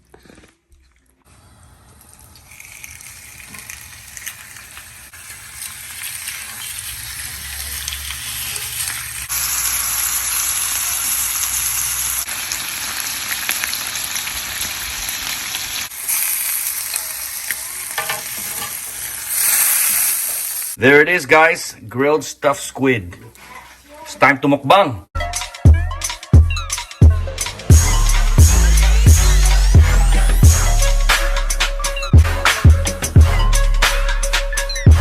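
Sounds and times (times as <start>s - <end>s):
squid sizzling on griddle: 2.0s - 20.8s.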